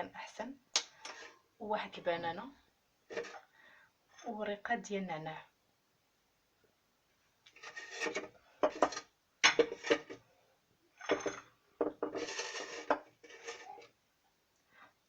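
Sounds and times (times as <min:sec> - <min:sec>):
dishes and utensils clinking: 0:07.7 - 0:10.2, 0:11.0 - 0:13.9.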